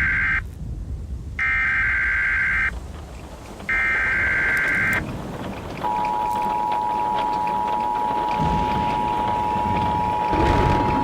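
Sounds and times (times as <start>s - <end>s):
electronic data bursts: 3.7s - 5.1s, 5.8s - 11.0s
two-tone attention signal: 5.8s - 11.0s.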